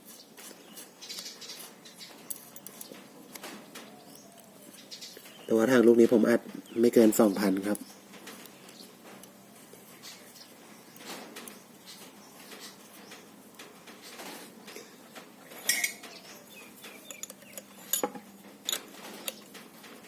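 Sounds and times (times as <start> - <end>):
metal fittings clinking: 2.2 - 4.8, 15.6 - 16.2, 16.8 - 19.6.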